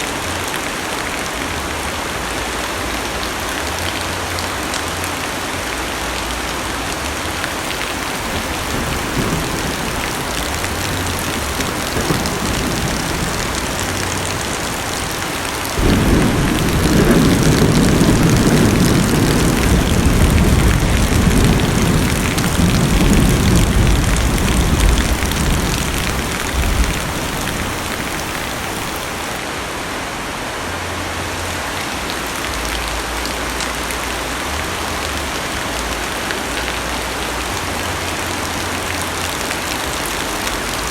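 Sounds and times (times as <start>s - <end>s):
heavy rain on car roof: 0.0s - 29.5s, 32.0s - 40.9s
thunder rumbling: 7.2s - 29.3s.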